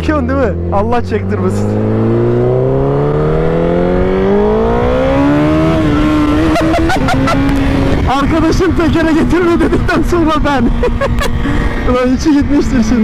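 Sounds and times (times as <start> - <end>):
motorcycle engine accelerating: 0.0 - 13.0
wind rush: 1.6 - 13.0.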